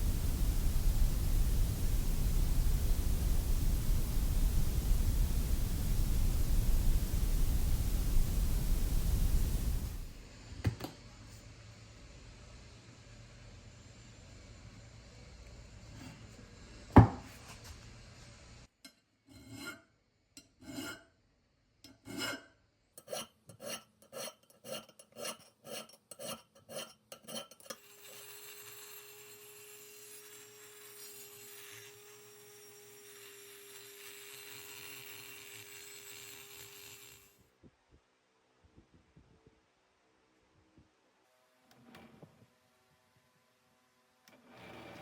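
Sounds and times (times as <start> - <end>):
steady hiss with low hum: 0.0 - 18.7
file rasping on a part: 19.3 - 19.8, 20.6 - 21.1, 21.9 - 37.3.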